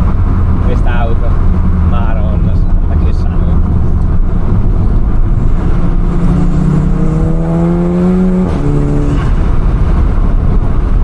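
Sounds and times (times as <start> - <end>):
car engine accelerating: 0.0 - 11.0
low road rumble: 0.0 - 11.0
gear upshift pitch drop: 3.5 - 10.7.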